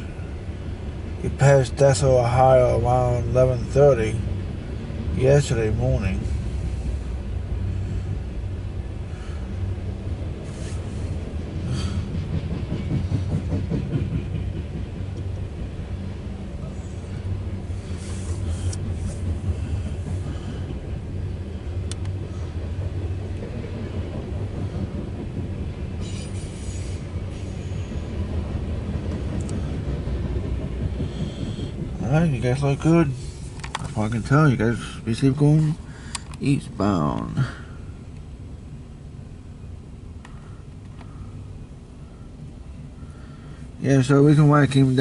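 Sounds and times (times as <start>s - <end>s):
train wheels rumbling on rail: 0.0s - 45.0s.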